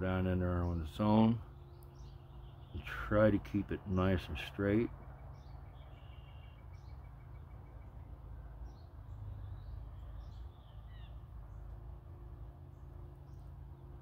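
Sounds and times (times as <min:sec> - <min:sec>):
small birds chirping: 0:00.0 - 0:14.0
bird trilling: 0:05.1 - 0:08.1.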